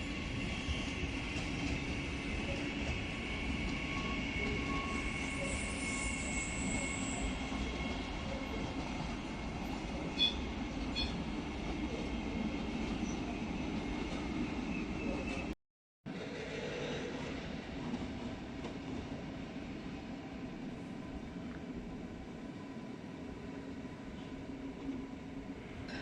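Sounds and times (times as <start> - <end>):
train wheels squealing: 0.0 - 8.7, 10.1 - 11.3, 12.9 - 15.6, 16.2 - 17.5.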